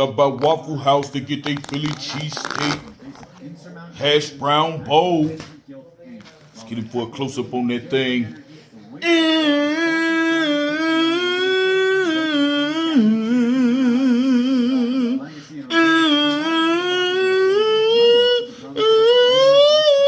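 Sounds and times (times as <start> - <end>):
person humming: 9.0 - 20.0.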